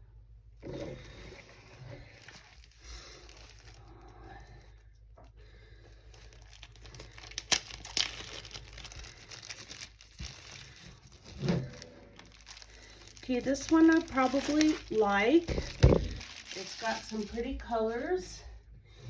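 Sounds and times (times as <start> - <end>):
packaging ripping: 2.0 - 3.9, 6.1 - 17.5
packaging crinkling: 2.0 - 4.0, 6.0 - 18.2.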